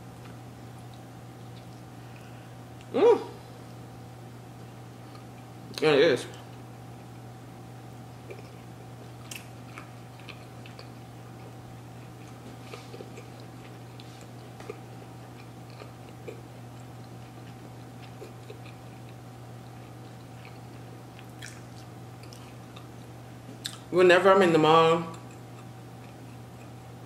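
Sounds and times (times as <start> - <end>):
steady low hum: 0.0 - 27.0
person chewing: 0.2 - 2.9, 8.0 - 23.0, 23.6 - 23.9, 25.1 - 27.0.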